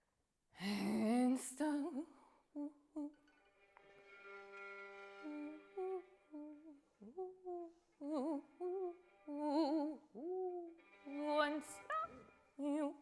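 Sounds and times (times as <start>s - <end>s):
person humming and singing: 0.8s - 3.2s, 5.2s - 13.0s.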